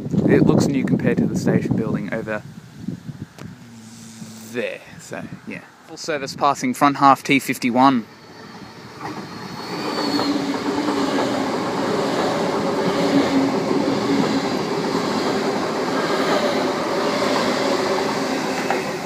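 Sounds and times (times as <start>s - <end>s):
train wheels rumbling on rails: 8.1s - 19.0s.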